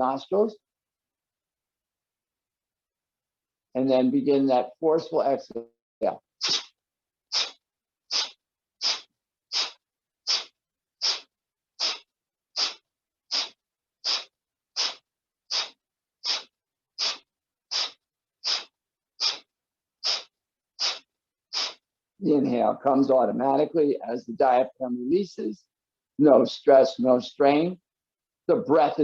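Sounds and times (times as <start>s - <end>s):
forceful nasal exhales: 6.4s - 6.7s, 7.3s - 21.8s.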